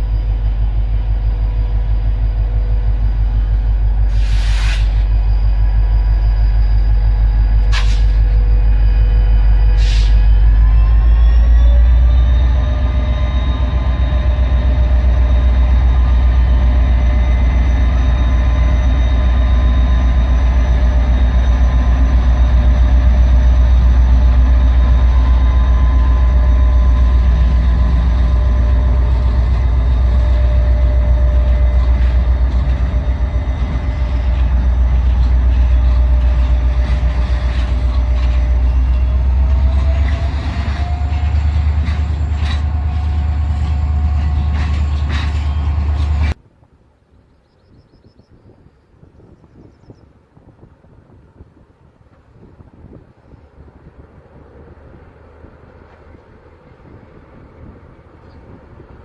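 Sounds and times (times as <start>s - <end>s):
train whining tones: 0.0s - 46.4s
train rumbling: 0.0s - 46.6s, 49.1s - 59.0s.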